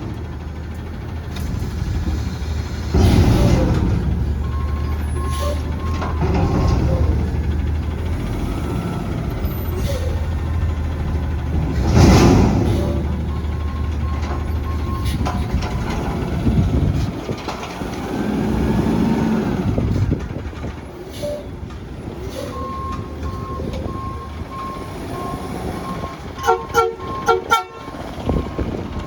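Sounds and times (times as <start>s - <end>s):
garbage truck diesel engine running: 0.0s - 29.0s
reversing alarm beeping: 3.4s - 6.8s, 12.8s - 15.2s, 22.4s - 29.0s.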